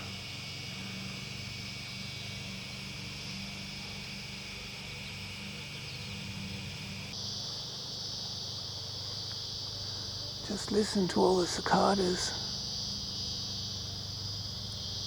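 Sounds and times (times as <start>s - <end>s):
cicadas singing: 0.0s - 15.0s
steady low hum: 0.0s - 15.0s.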